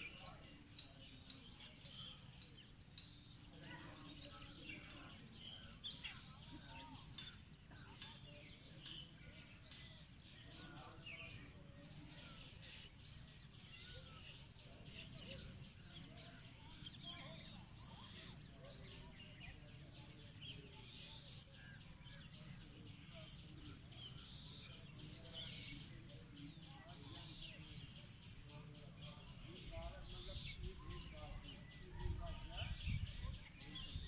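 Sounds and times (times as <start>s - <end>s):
small bird high rising chirp: 0.0s - 34.0s.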